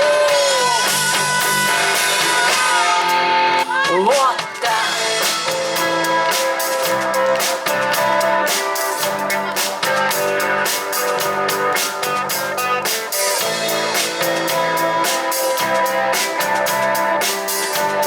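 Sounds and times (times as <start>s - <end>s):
electric guitars holding chords: 0.0s - 3.9s, 4.6s - 18.0s
drum kit steady beat: 0.0s - 18.0s.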